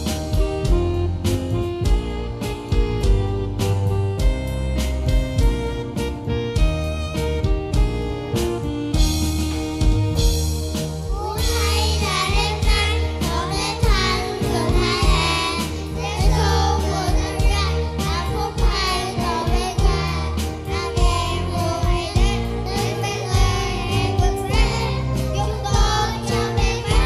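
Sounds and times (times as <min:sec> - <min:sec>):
instrumental music with beat: 0:00.0 - 0:27.0
children singing: 0:11.1 - 0:27.0.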